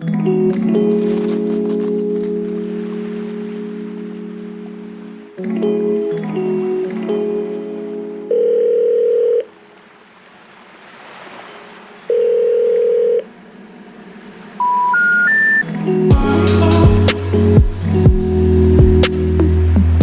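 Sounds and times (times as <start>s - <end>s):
music: 0.0s - 8.3s, 15.5s - 20.0s
telephone ringback tone: 8.3s - 9.6s, 12.1s - 13.2s, 14.6s - 15.7s
three rising information tones: 14.6s - 17.4s
loud music with heavy beat: 16.1s - 20.0s.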